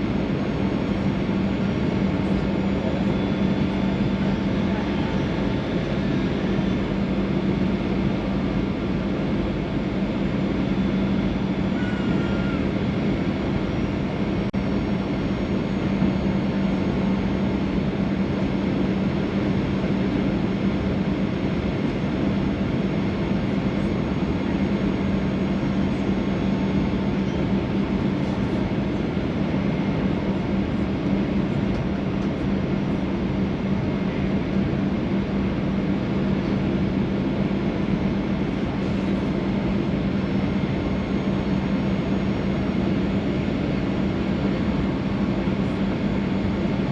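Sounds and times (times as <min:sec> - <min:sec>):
airplane cabin engine drone: 0:00.0 - 0:46.9.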